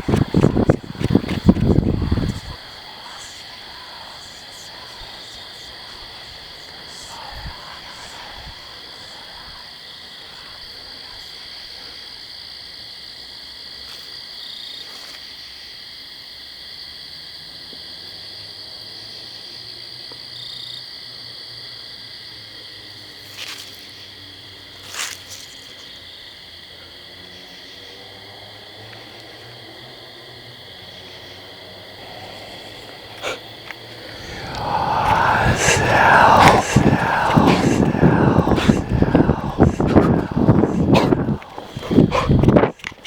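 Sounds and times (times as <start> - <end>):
night animals trilling: 0.0 - 11.8, 31.9 - 42.9.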